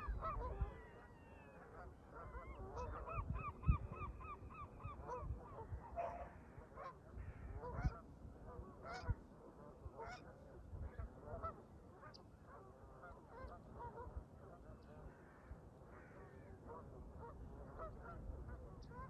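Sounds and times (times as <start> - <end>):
geese honking: 0.0 - 3.3, 10.0 - 10.2, 13.0 - 19.0
wind rumbling on microphone: 0.0 - 11.6, 16.6 - 19.0.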